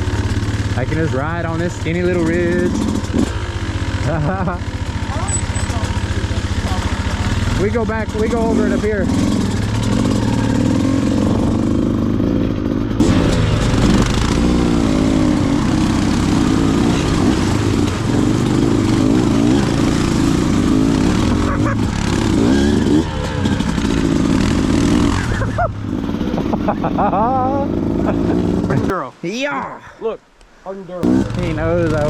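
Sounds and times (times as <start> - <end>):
dirt bike engine revving: 0.0 - 29.0, 31.0 - 32.0.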